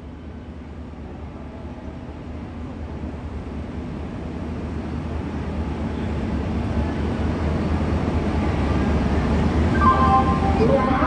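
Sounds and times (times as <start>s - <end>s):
train rumbling: 0.5s - 11.0s.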